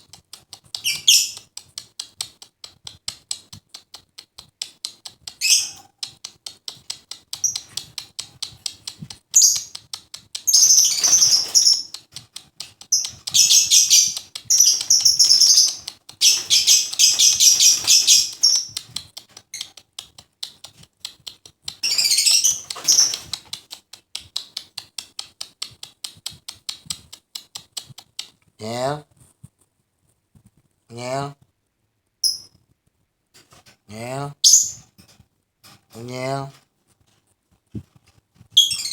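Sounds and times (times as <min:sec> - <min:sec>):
bird sharp ticking calls: 0:00.8 - 0:01.5, 0:10.4 - 0:12.1, 0:12.8 - 0:19.0
shrill bird chattering: 0:10.5 - 0:12.0, 0:12.9 - 0:18.8, 0:21.8 - 0:23.3.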